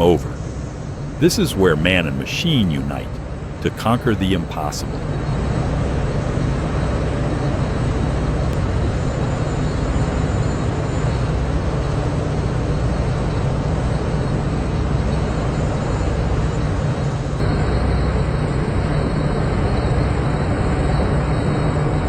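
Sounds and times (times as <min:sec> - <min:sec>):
road noise: 0:00.0 - 0:05.1.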